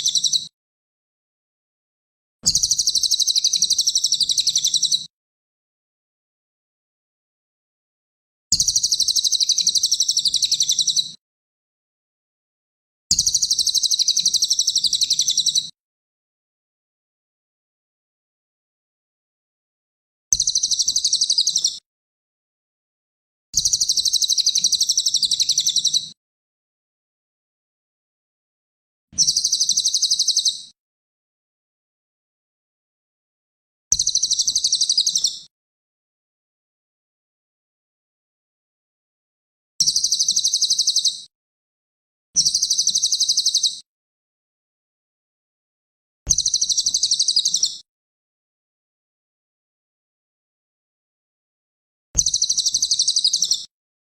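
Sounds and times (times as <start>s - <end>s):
songbird singing a high trill: 2.6s - 5.0s, 23.6s - 26.1s, 29.2s - 30.8s, 34.0s - 35.4s, 39.9s - 41.2s, 42.4s - 43.8s, 46.4s - 47.8s, 52.2s - 53.7s.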